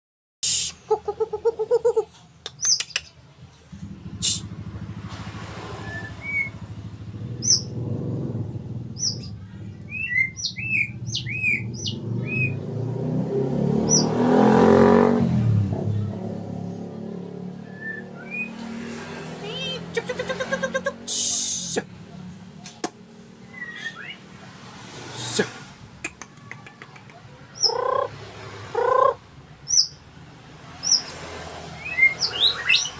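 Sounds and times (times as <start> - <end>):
vehicle engine passing: 3.3 - 32.9
bird singing whistled notes: 5.7 - 6.7, 7.4 - 7.7, 9.0 - 12.6, 17.6 - 18.6, 23.4 - 24.3, 29.6 - 30.0, 31.8 - 32.9.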